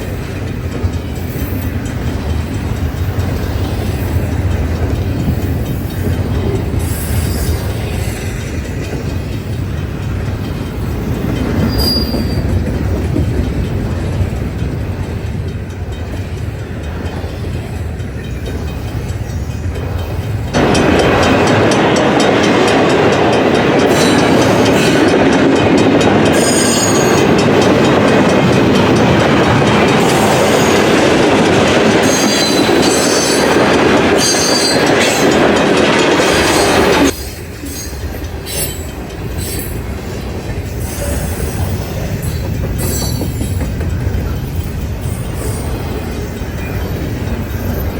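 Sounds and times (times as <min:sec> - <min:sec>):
train wheels rumbling on rail: 0:00.0 - 0:47.9
wheel flange squeal: 0:11.6 - 0:12.5.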